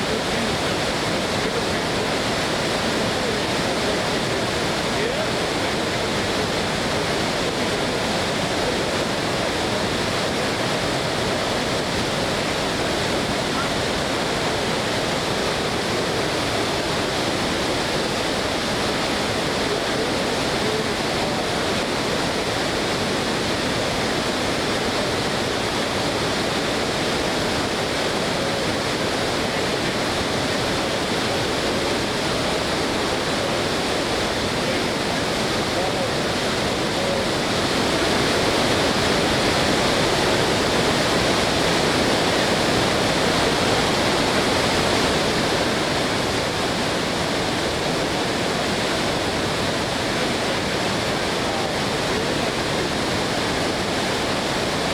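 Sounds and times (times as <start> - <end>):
floodwater pouring over falls: 0.0 - 54.9.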